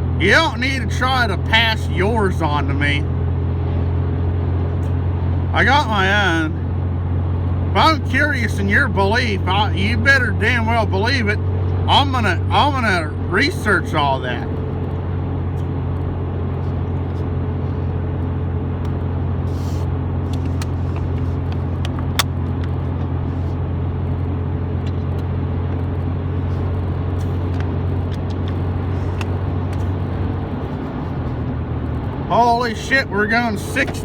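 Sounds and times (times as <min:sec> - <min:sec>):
truck engine and tyres droning: 0:00.0 - 0:34.0.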